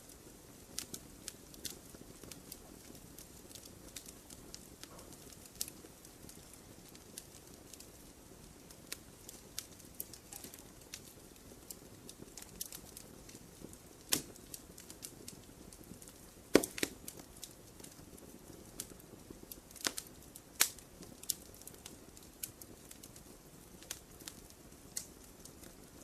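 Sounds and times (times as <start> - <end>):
campfire flames rustling: 0.0 - 26.0
fire crackles and pops: 0.0 - 26.0.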